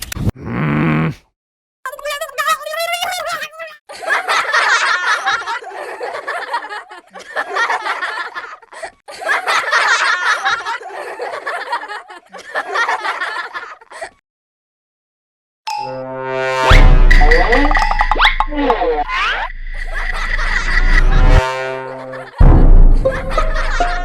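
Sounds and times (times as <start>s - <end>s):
high-pitched laughter and snickering: 1.9s - 14.2s.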